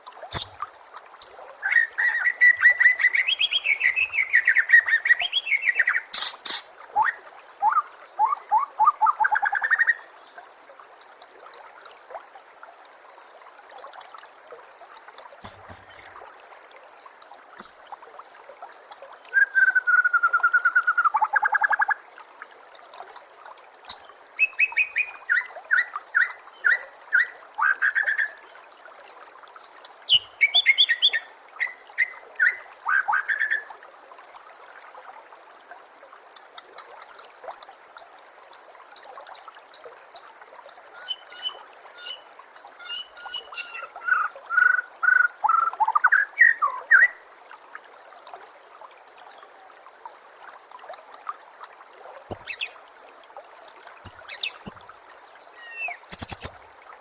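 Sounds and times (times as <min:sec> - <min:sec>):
water trickling: 0:00.0 - 0:57.0
bird whistling and chattering: 0:00.3 - 0:00.6, 0:42.8 - 0:45.7.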